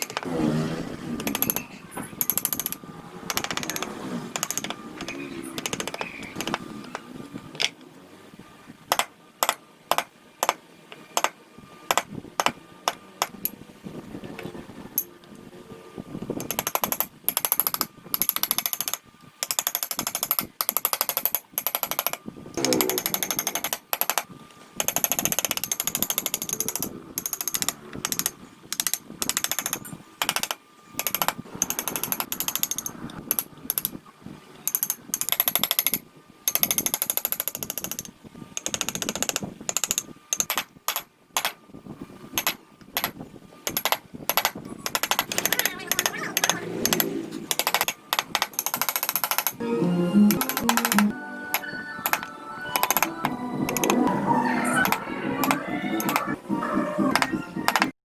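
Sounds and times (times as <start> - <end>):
power carving tool on wood: 22.6 - 23.7.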